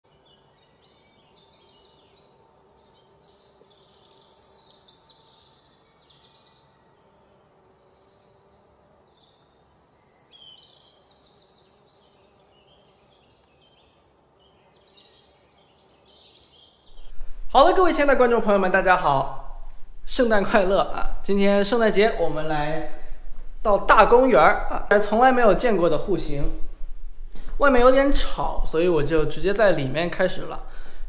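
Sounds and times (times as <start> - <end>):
birds chirping and trilling: 0.0 - 31.0
faint background hum: 0.1 - 31.0.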